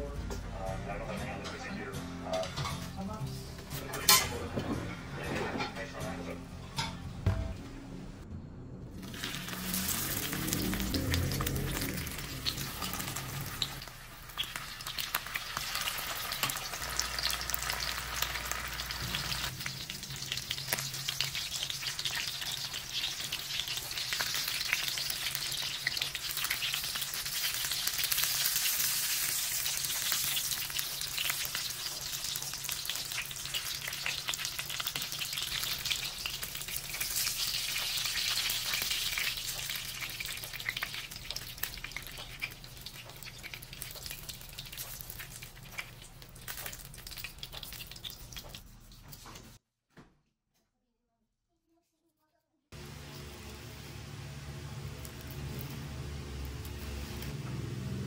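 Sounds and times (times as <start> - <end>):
food sizzling in hot oil: 9.0 - 49.1.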